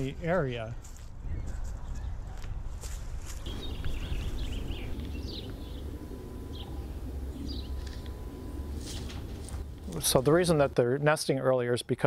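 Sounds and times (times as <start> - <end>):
birds chirping: 3.5 - 10.8
low background rumble: 3.5 - 10.8.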